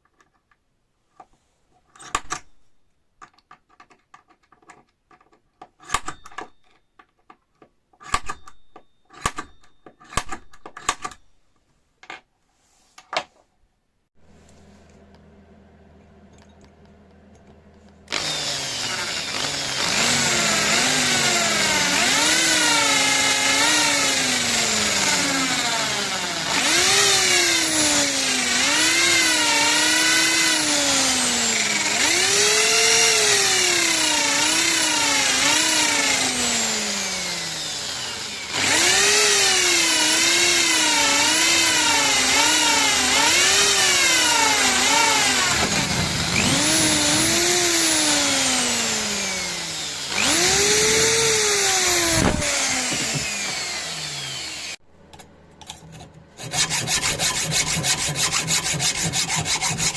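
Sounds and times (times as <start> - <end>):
electric power tool motor: 18.1 - 54.8, 56.4 - 59.9.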